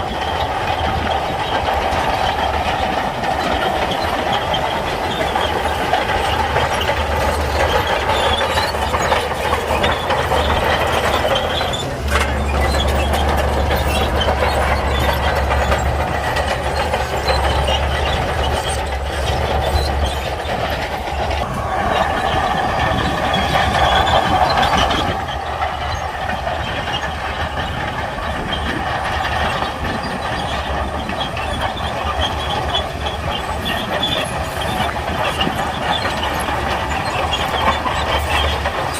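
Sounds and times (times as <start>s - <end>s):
bulldozer diesel engine running: 0.0s - 38.9s
steel tracks clattering: 0.0s - 38.9s.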